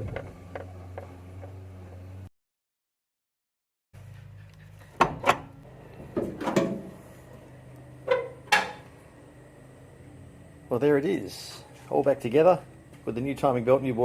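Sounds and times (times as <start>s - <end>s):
low steady hum: 4.0s - 14.0s
object clunking and knocking: 4.1s - 6.9s.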